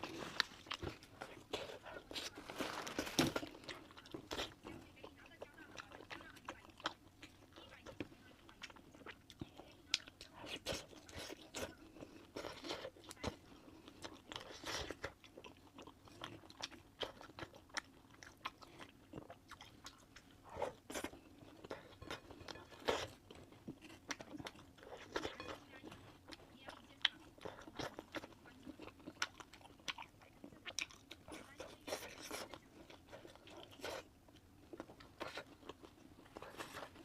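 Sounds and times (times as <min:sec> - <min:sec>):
person chewing and biting: 0:08.6 - 0:25.6, 0:27.0 - 0:37.0.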